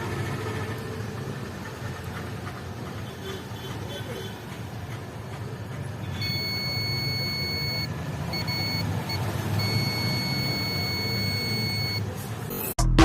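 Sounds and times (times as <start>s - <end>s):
high-pitched electronic beep: 6.2s - 13.0s.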